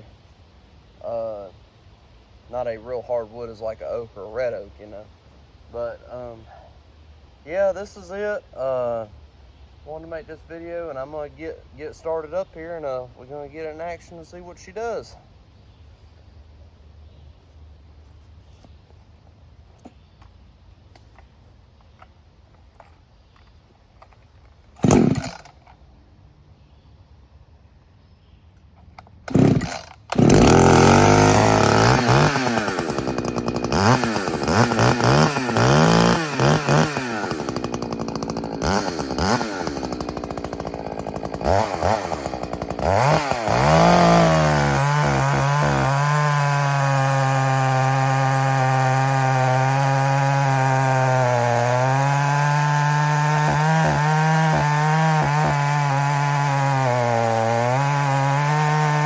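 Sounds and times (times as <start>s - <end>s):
chainsaw revving: 24.8s - 25.6s, 29.3s - 59.0s.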